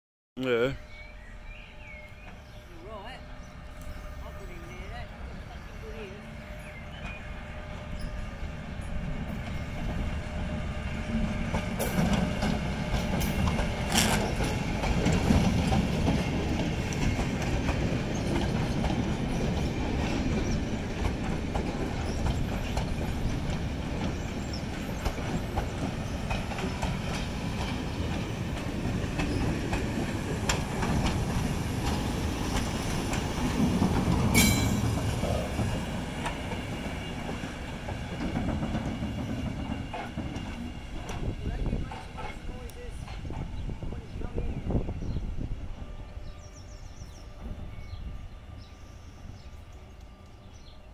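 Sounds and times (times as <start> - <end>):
train wheels rumbling: 0.5 - 50.9
wheels clacking over rail joints: 11.1 - 43.8.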